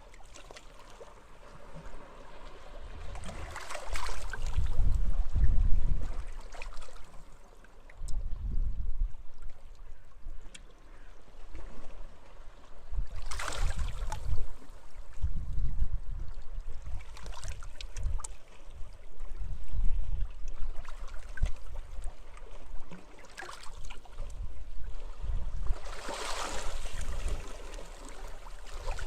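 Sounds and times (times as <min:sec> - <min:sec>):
small waves lapping at shore: 0:00.0 - 0:08.0, 0:09.2 - 0:15.2, 0:16.5 - 0:29.0
wind rumble on microphone: 0:02.8 - 0:06.5, 0:08.0 - 0:10.5, 0:12.8 - 0:23.0, 0:23.8 - 0:27.6, 0:28.2 - 0:29.0.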